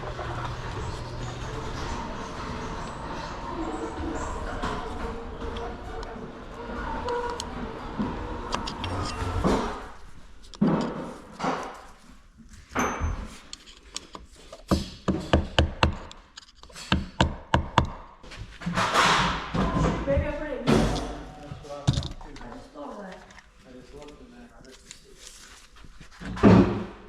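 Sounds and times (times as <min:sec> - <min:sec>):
workshop knocks and clatter: 0:10.6 - 0:12.0, 0:14.6 - 0:16.1, 0:16.8 - 0:22.4, 0:26.2 - 0:27.0.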